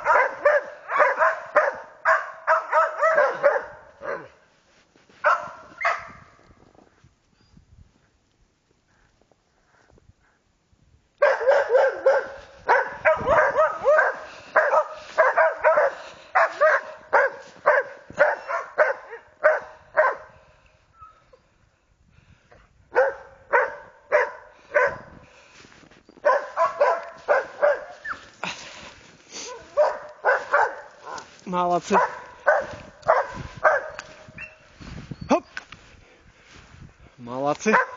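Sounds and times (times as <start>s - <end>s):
dogs barking rapidly: 0.0s - 4.4s, 5.2s - 6.2s, 11.2s - 20.4s, 22.9s - 25.2s, 26.2s - 28.3s, 29.4s - 34.7s, 37.6s - 37.9s.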